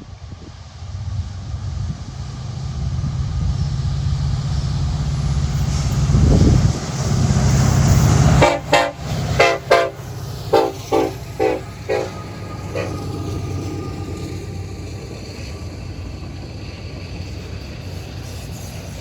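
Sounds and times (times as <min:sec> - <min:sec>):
diesel locomotives rumbling: 0:00.0 - 0:19.0
train horn short toots: 0:08.3 - 0:14.0.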